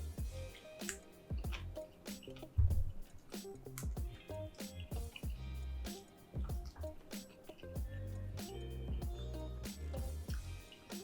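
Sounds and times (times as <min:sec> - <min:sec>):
soft background music: 0:00.0 - 0:11.0
wet chewing and mouth sounds: 0:00.5 - 0:05.4, 0:06.4 - 0:07.6, 0:10.3 - 0:10.5
sharp mouth smacks: 0:00.8 - 0:04.0.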